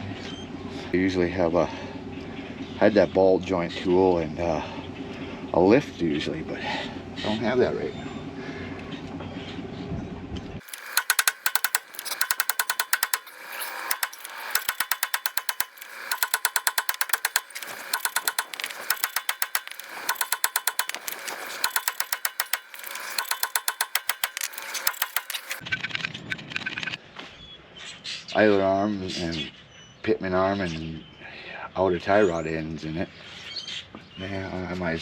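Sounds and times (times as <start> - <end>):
ratchet wrench clicking: 10.6 - 25.6.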